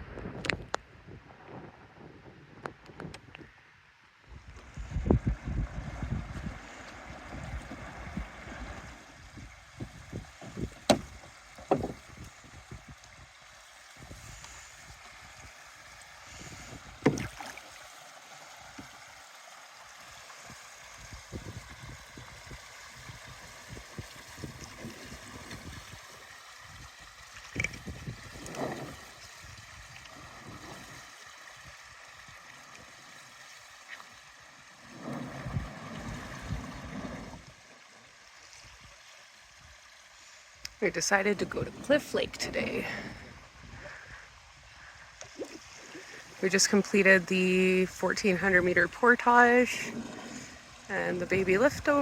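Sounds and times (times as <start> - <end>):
paddle strokes splashing: 4.6 - 19.0, 23.6 - 39.0, 40.2 - 44.1, 44.8 - 52.0.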